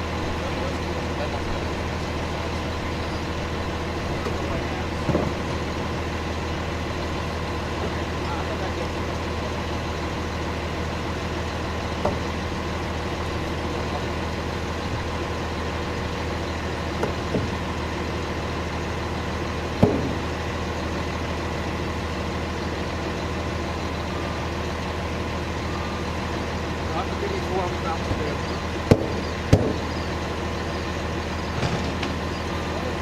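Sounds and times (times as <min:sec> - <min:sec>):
engine idling: 0:00.0 - 0:33.0
sharp knocks: 0:19.8 - 0:20.2, 0:28.9 - 0:29.8.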